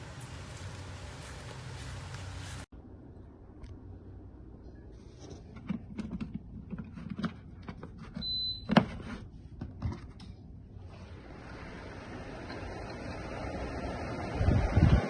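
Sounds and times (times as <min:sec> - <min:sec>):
air conditioner fan rushing: 0:10.8 - 0:15.0.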